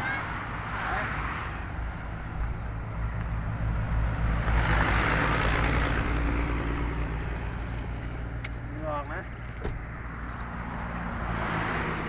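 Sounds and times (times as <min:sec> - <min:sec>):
motor vehicle passing: 0:00.0 - 0:12.0.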